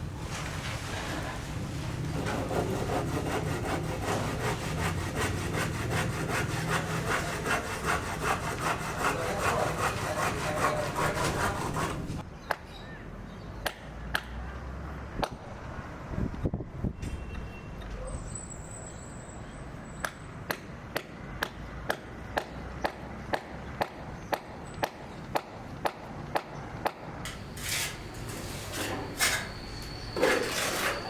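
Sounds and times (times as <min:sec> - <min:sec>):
hand saw strokes: 0:02.2 - 0:12.2, 0:27.3 - 0:31.0.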